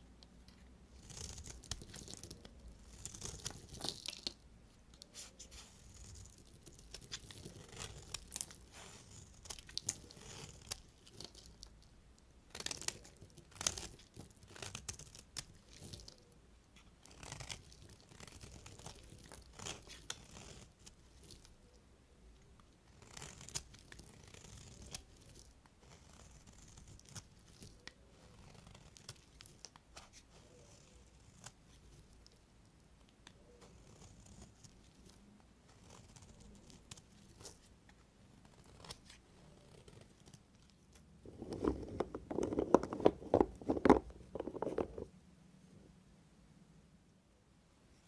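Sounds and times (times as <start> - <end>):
knife cutting soap: 5.0 - 11.7, 16.8 - 21.5.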